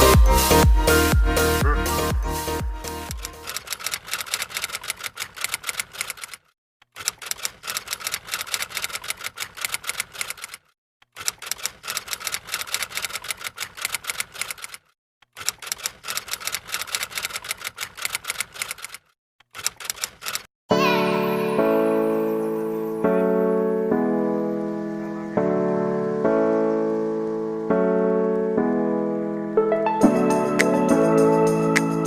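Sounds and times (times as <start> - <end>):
typewriter-like key clicks: 15.4 - 20.5.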